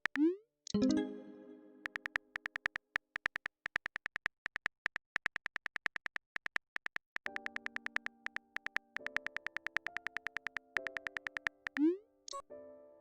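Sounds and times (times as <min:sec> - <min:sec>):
phone keyboard typing clicks: 0:01.8 - 0:12.4
soft electric piano chords: 0:07.3 - 0:11.8.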